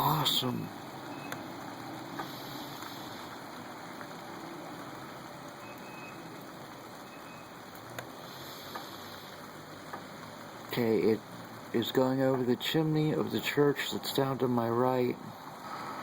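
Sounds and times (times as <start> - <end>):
faint steady background hiss: 0.0 - 16.0
soft ticks: 7.7 - 8.1, 9.8 - 10.3.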